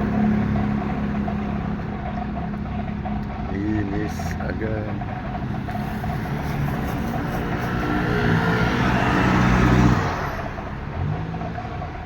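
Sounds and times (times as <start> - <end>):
vehicle engine passing by: 5.1 - 12.0.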